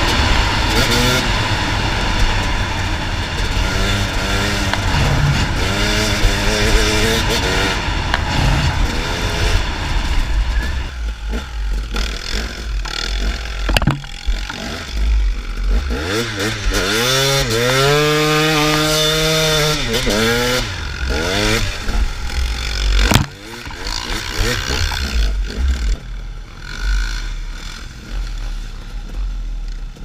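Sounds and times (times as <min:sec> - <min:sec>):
dirt bike engine revving: 0:00.0 - 0:30.0
sharp knock: 0:13.6 - 0:14.6, 0:23.0 - 0:23.8.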